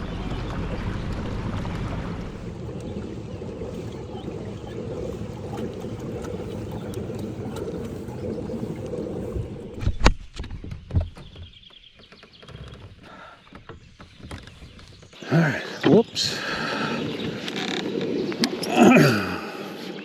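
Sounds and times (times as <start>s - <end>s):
low rushing water noise: 0.0s - 10.1s.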